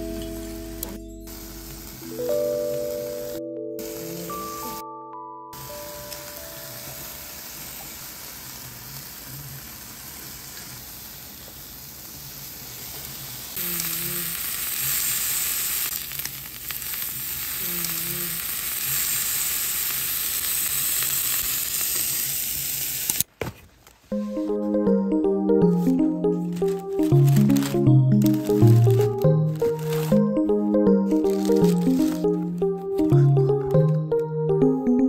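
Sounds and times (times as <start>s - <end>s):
food sizzling in a pan: 1.3s - 4.8s, 5.6s - 23.2s.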